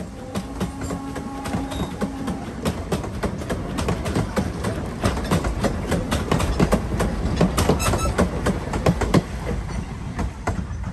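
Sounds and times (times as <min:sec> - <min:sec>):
low rumble of rolling coaches: 0:00.0 - 0:10.9
train wheels clattering over rail joints: 0:00.0 - 0:10.9
high-pitched wheel squeal: 0:07.8 - 0:08.2.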